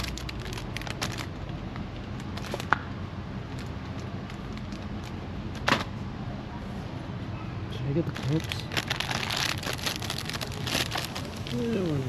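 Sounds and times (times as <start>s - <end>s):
small items clicking and rustling: 0.0s - 1.5s, 8.1s - 11.9s
steady background hum: 0.0s - 12.0s.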